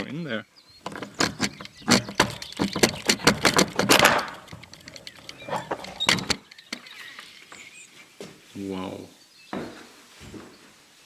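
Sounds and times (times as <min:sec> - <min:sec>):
door clicks and rattles: 0:00.8 - 0:07.6.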